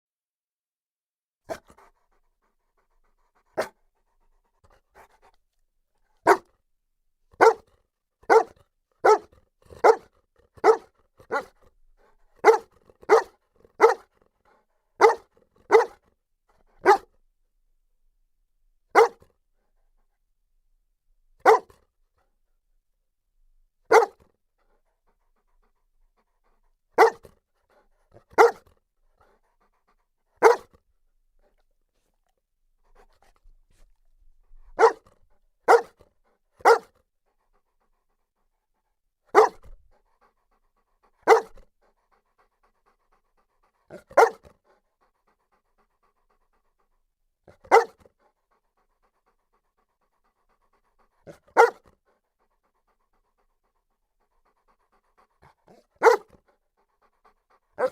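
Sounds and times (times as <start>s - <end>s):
dog barking deeply: 7.4s - 7.6s, 8.3s - 11.5s, 12.4s - 14.1s, 15.0s - 16.0s, 16.8s - 17.1s, 19.0s - 19.2s, 21.4s - 21.7s, 23.9s - 24.2s, 27.0s - 27.3s, 28.3s - 28.6s, 30.4s - 30.7s, 34.8s - 35.1s, 35.7s - 36.0s, 36.6s - 36.9s, 39.3s - 39.7s, 41.2s - 41.6s, 43.9s - 44.5s, 47.7s - 48.0s, 51.2s - 51.9s, 55.7s - 56.3s.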